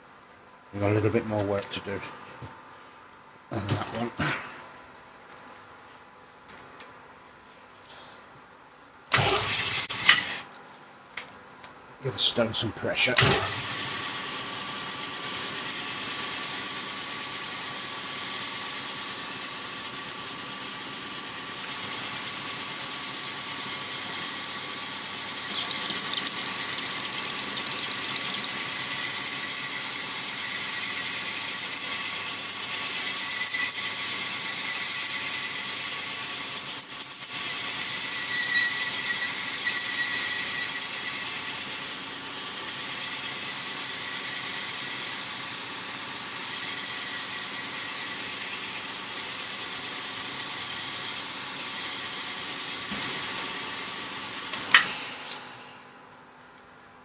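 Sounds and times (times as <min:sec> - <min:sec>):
honing machine squealing: 0:25.4 - 0:29.6.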